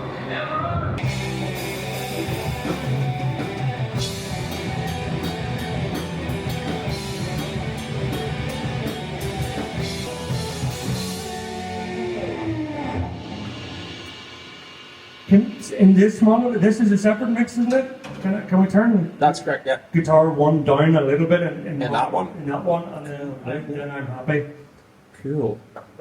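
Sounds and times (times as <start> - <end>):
heavy rock band playing: 0.0 - 19.2.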